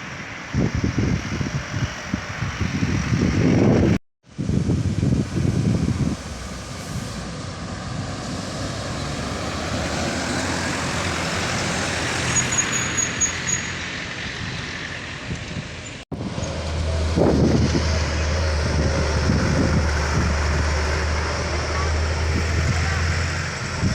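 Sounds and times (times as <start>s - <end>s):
low engine hum: 0.0s - 12.3s, 14.3s - 23.9s
heavy trucks engine rumble: 0.0s - 23.9s
road noise: 0.0s - 23.9s.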